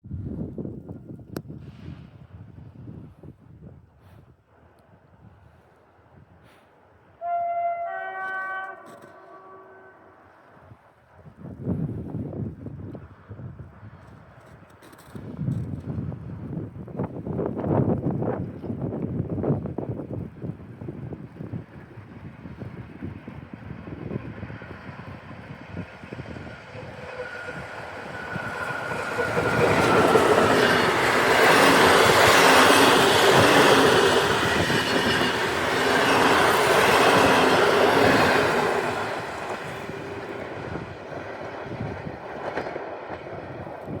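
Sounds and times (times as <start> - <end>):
passenger train passing: 7.1 - 13.2, 16.8 - 44.0.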